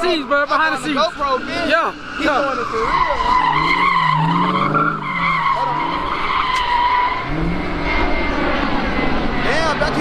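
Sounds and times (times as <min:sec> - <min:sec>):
car engine revving: 0:00.0 - 0:10.0
car tyres squealing: 0:00.0 - 0:10.0.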